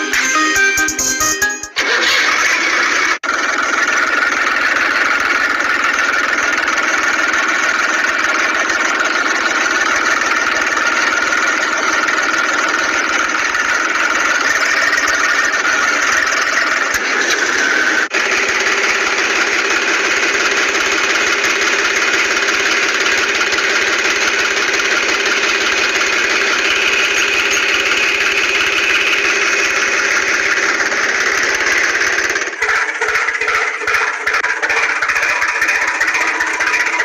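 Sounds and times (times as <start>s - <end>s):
engine running: 0.0s - 37.0s.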